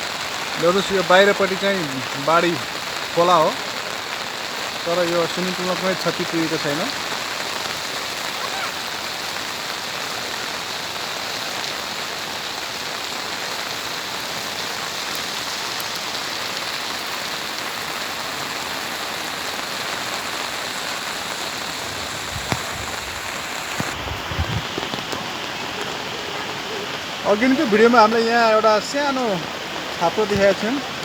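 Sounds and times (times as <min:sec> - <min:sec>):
heavy rain: 0:00.0 - 0:31.0
rushing floodwater: 0:00.0 - 0:31.0
low bumps: 0:21.9 - 0:25.0.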